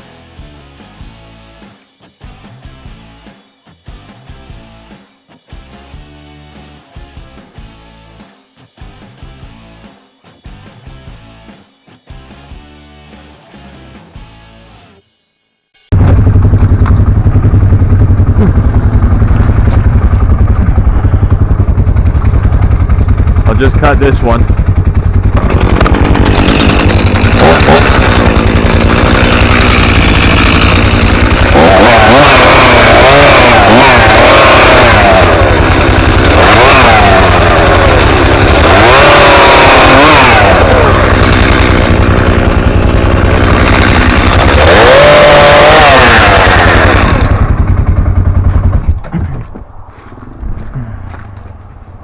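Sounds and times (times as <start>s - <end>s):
chainsaw cutting wood: 23.4s - 49.1s.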